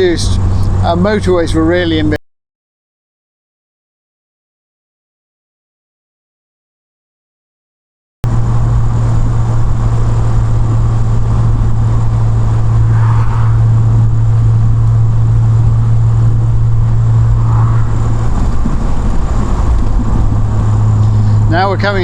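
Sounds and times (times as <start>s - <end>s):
car engine cruising: 0.0s - 2.2s, 8.2s - 22.0s
road noise: 0.0s - 2.2s, 8.2s - 22.0s.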